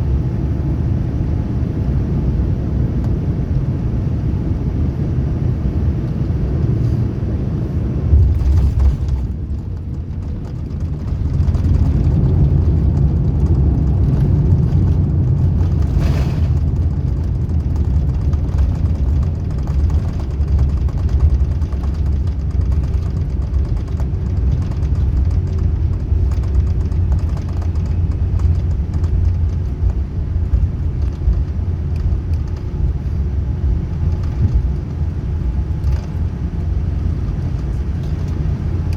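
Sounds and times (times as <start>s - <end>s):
airliner cabin rumble: 0.0s - 38.9s.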